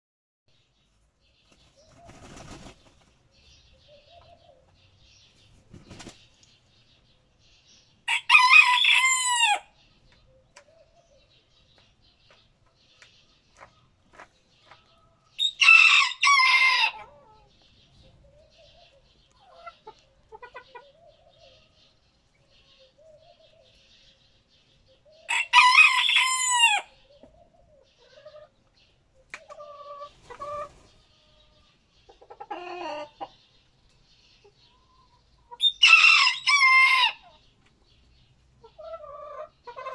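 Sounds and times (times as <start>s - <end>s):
faint bird chirping: 0.5s - 8.2s, 9.6s - 16.1s, 16.9s - 25.6s, 26.9s - 35.9s
roosters crowing: 8.0s - 9.7s, 15.4s - 17.4s, 25.3s - 27.0s, 35.6s - 37.4s
soft clucking: 18.3s - 21.5s.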